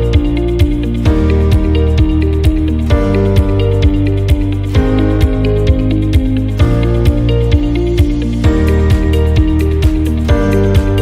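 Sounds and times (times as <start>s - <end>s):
kick drum beat: 0.0s - 11.0s
light instrumental music: 0.0s - 11.0s.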